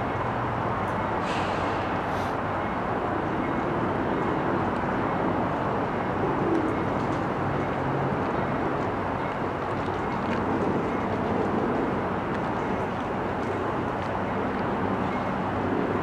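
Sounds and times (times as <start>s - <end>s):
diesel locomotives idling: 0.0s - 3.0s
rail yard rumble: 0.0s - 16.0s.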